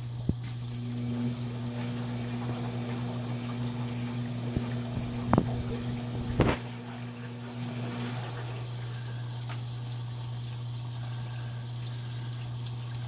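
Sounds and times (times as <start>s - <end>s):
electric hum: 0.0s - 13.0s
washing machine water sounds: 0.0s - 13.0s.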